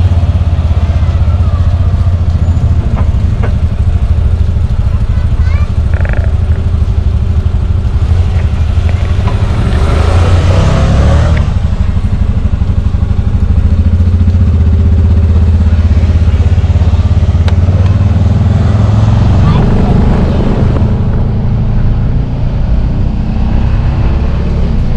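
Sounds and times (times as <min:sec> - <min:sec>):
small vehicle engine running: 0:00.0 - 0:24.9
rushing noise: 0:18.4 - 0:24.9.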